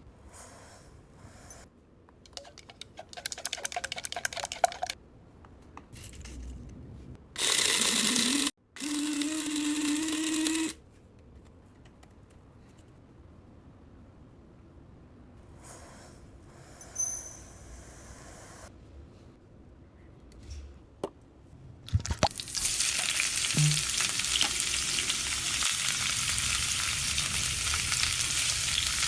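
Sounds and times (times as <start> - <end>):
blender motor whining: 7.4 - 10.8.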